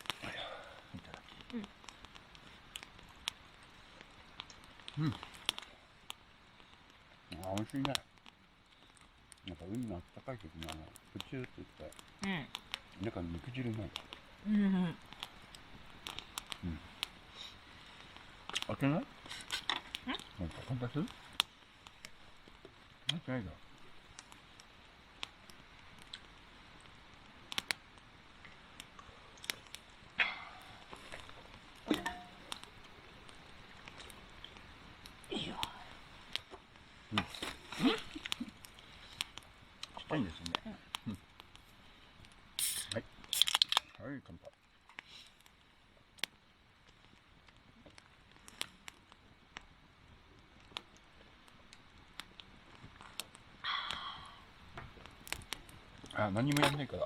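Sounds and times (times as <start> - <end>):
campfire crackling pops: 0.0 - 57.0
quiet hiss: 0.0 - 57.0
drink can opening: 42.6 - 43.8.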